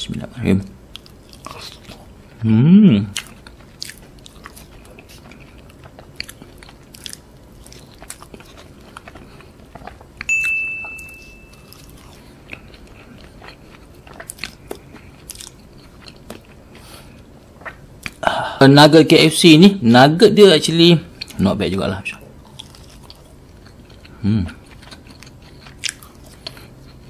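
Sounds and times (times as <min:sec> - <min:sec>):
chewing and crunching food: 0:00.8 - 0:02.4, 0:03.1 - 0:10.3, 0:11.4 - 0:18.2, 0:21.1 - 0:27.0
high-pitched tone: 0:10.3 - 0:11.8.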